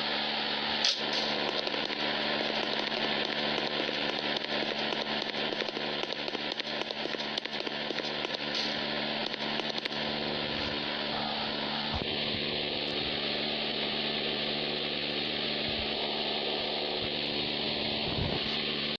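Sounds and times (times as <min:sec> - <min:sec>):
steady mechanical hum: 0:00.0 - 0:18.9
crackling clicks: 0:00.8 - 0:10.0.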